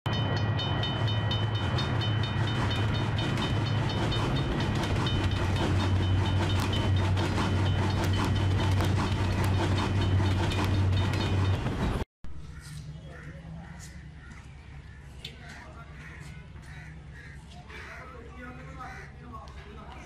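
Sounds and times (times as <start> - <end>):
train wheels clicking over rail joints: 0.2 - 12.0.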